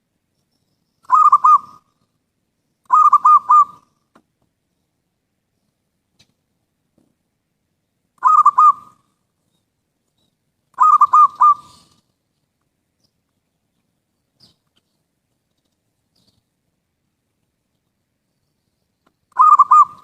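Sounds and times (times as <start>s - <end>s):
dove cooing: 1.1s - 1.9s, 2.9s - 3.9s, 8.2s - 9.0s, 10.8s - 12.0s, 19.3s - 20.0s.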